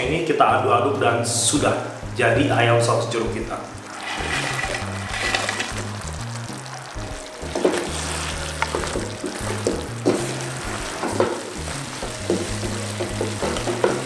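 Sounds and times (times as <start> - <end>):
sauce sizzling in frying pan: 3.7 - 14.0
spatula scraping and knocking pan: 3.9 - 6.0, 8.6 - 14.0.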